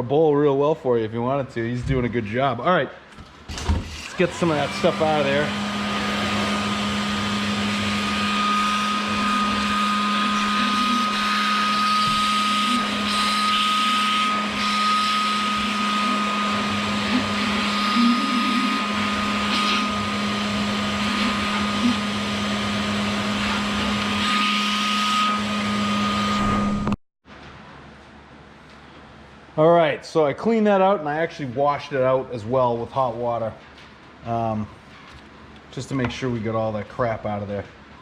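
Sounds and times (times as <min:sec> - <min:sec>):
vacuum cleaner running: 0:03.5 - 0:27.0.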